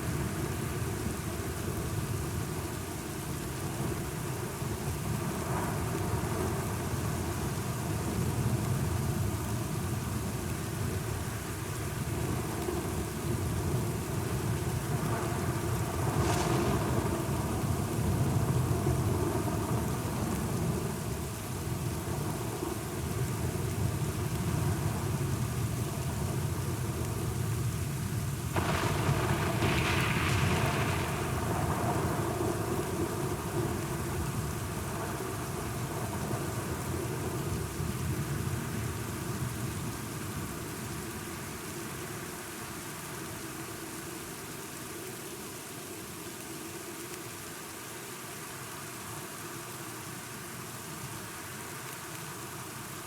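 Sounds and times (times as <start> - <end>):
steady rain: 0.0 - 53.0
low rolling thunder: 13.5 - 21.2, 28.6 - 37.7
sharp thunderclaps: 28.6 - 33.1.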